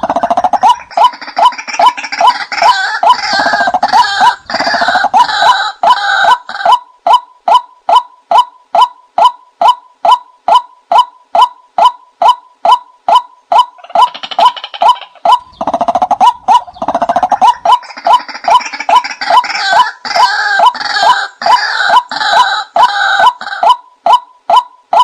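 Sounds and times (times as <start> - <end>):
bird chattering: 0.0 - 25.0
recorded bird call repeating: 0.0 - 25.0.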